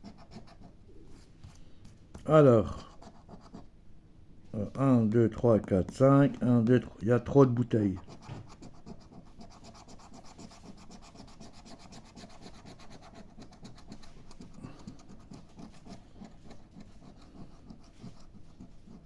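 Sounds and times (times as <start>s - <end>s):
scratch card being scratched: 0.0s - 0.8s, 2.7s - 3.7s, 7.9s - 19.0s.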